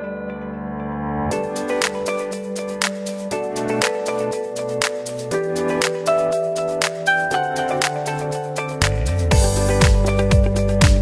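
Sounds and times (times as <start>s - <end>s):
sustained music chords: 0.0s - 11.0s
sharp percussion hits: 8.8s - 11.0s.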